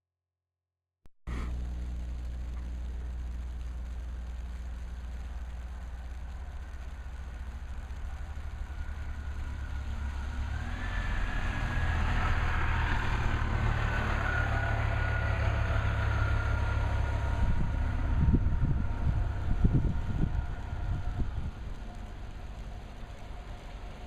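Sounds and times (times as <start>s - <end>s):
bus diesel engine rumbling: 1.3s - 24.0s
high whine: 1.3s - 24.0s.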